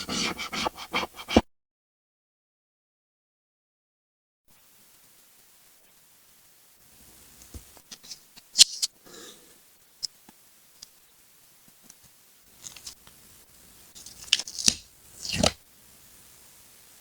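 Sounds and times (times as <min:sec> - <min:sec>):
paper rustling: 0:12.6 - 0:13.0, 0:14.0 - 0:15.6
scissors snipping paper: 0:14.0 - 0:15.6.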